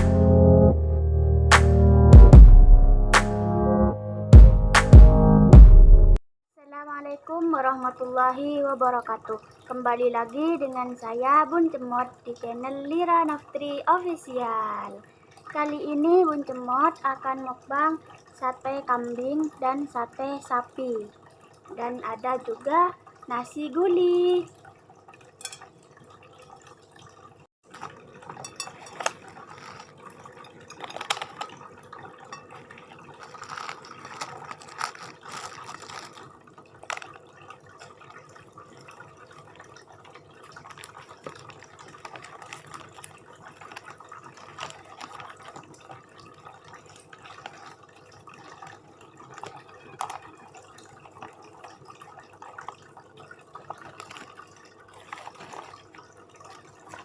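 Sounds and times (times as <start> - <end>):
utensils clicking and tapping: 27.7 - 29.9
wet chewing: 33.1 - 37.2.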